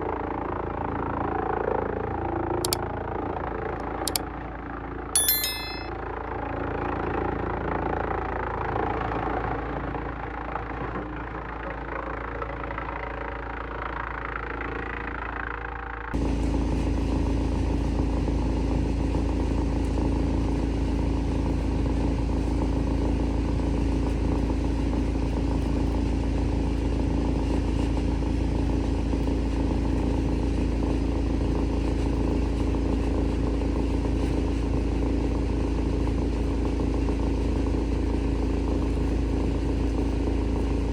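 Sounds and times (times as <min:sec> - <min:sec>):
wood chipper drone: 0:16.2 - 0:40.9.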